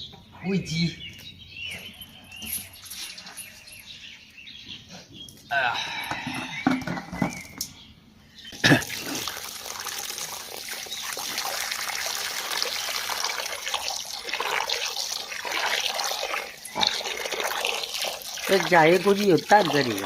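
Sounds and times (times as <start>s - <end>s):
water running into container: 8.6s - 20.0s.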